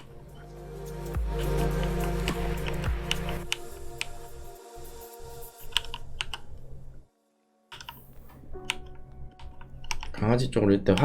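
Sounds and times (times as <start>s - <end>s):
computer keyboard keys clicking: 8.6s - 10.2s.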